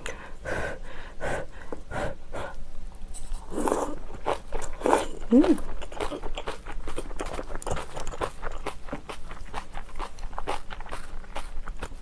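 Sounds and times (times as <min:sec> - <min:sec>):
wet crunchy chewing: 0:03.2 - 0:12.0.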